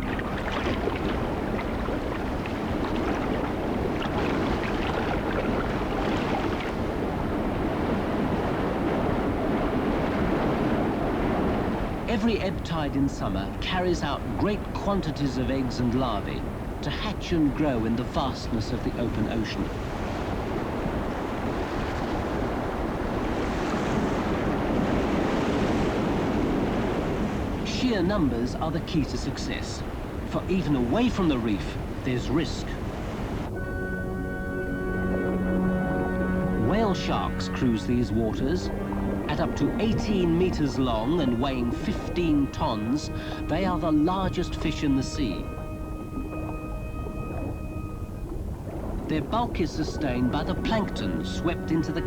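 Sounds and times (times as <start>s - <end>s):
rushing surging water: 0.0s - 52.0s.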